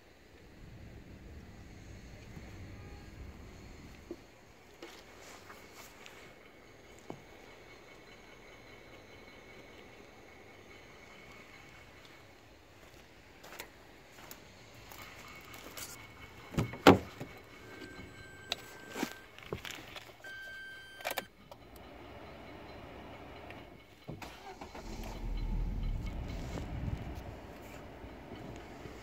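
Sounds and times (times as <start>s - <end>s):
car engine starting and rumbling: 0.3s - 6.1s, 14.2s - 29.0s.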